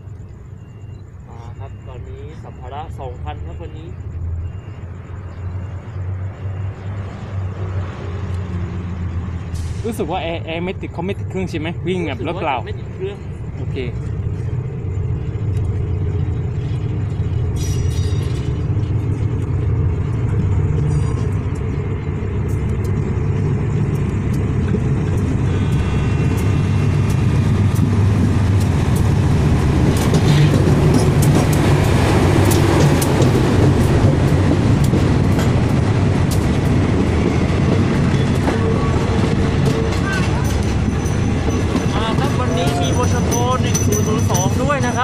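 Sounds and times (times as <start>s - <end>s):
diesel locomotive engine drone: 0.0s - 45.0s
train wheels clicking and knocking: 13.2s - 45.0s.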